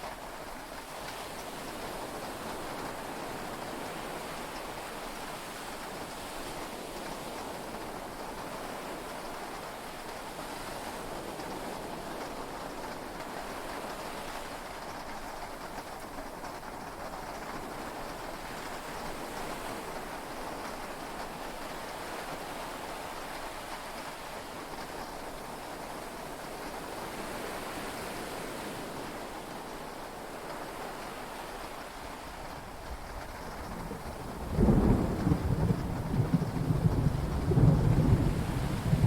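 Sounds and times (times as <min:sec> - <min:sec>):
heavy rain on cabin roof: 0:00.0 - 0:39.0
rolling thunder: 0:33.0 - 0:39.0.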